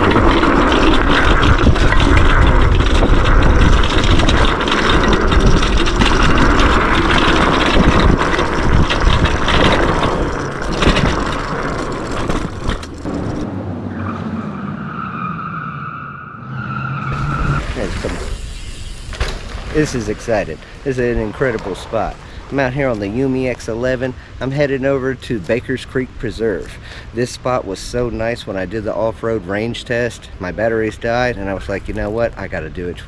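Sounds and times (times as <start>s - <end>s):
wind buffeting microphone: 0.0s - 14.2s, 17.1s - 26.7s.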